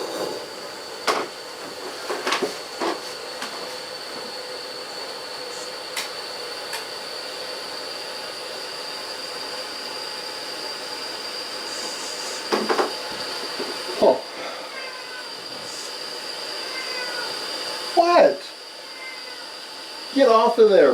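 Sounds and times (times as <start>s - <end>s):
steam locomotive hissing: 0.0s - 20.9s
thin high whine: 5.1s - 7.1s, 8.2s - 20.9s.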